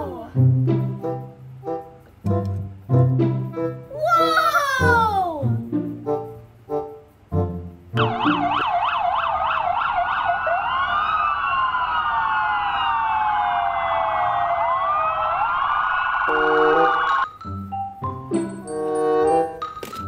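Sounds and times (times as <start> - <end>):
police sirens yelping and wailing: 8.0 - 17.3.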